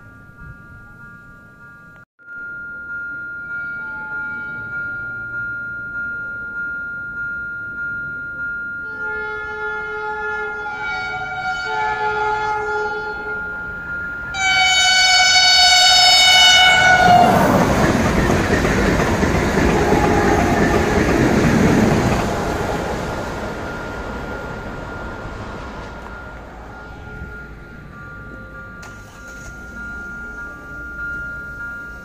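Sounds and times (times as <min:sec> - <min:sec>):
crossing warning bell ringing: 0:00.0 - 0:32.0
train horn blasts: 0:08.8 - 0:13.6, 0:14.3 - 0:17.7, 0:19.6 - 0:21.0
train rushing past: 0:10.5 - 0:32.0.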